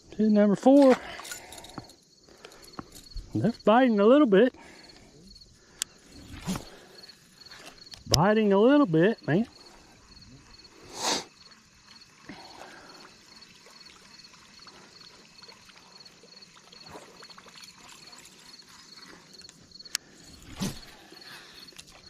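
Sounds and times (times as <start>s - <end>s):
insect pulsing chirp: 0.0s - 22.0s.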